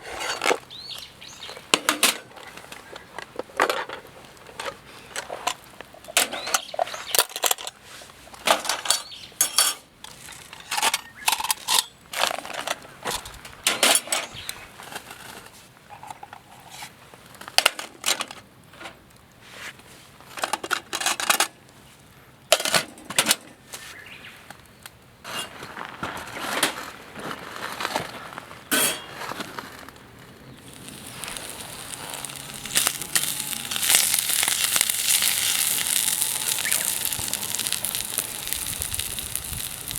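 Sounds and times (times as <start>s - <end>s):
cookware and utensils clinking: 8.5s - 9.9s, 28.7s - 29.2s
food sizzling in a pan: 30.6s - 39.9s.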